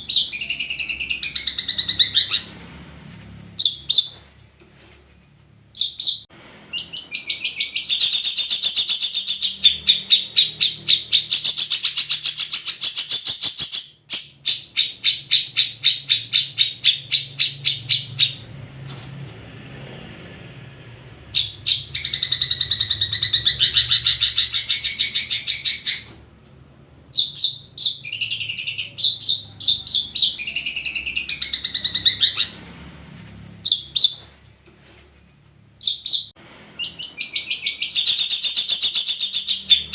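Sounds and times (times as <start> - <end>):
bird chattering song: 0.0 - 2.6, 5.8 - 18.4, 21.3 - 26.1, 27.1 - 32.6, 35.8 - 39.9.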